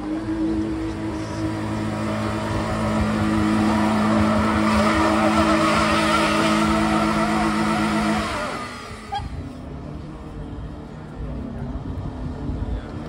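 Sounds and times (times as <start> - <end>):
car engine revving high: 0.0 - 9.4
wheels spinning in mud: 0.0 - 9.4.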